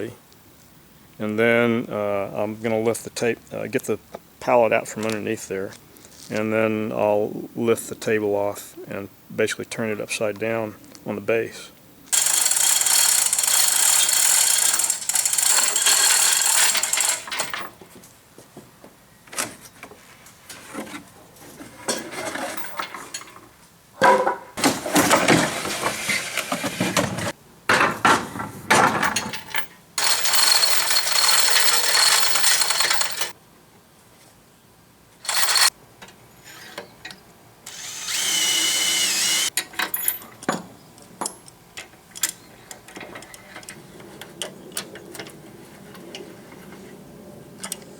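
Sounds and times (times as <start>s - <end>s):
power drill running: 12.2s - 17.2s, 30.0s - 33.3s, 35.3s - 35.7s, 37.7s - 39.5s
metal knocks and clanks: 26.9s - 33.2s.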